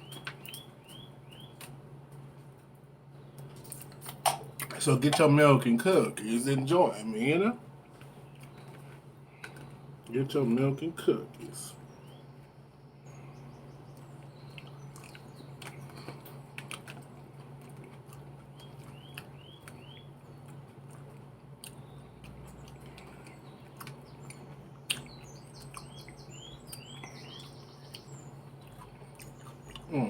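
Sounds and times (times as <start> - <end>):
steady low hum: 0.0 - 30.0
person chewing salad: 3.4 - 4.7, 13.9 - 30.0.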